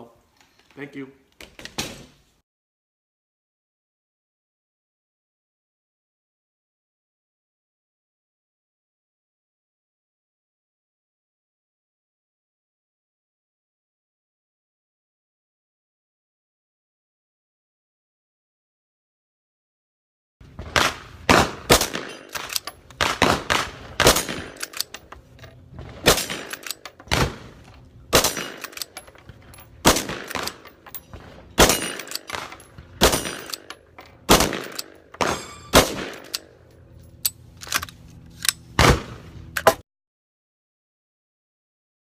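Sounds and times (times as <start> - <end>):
gunshots with echo: 20.6 - 24.6, 29.8 - 30.6, 34.3 - 36.3.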